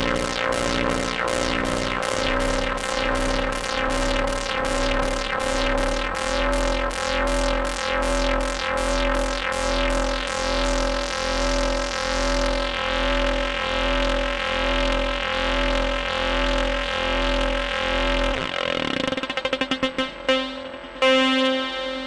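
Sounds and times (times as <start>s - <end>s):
electronic synthesizer music: 0.0s - 22.0s.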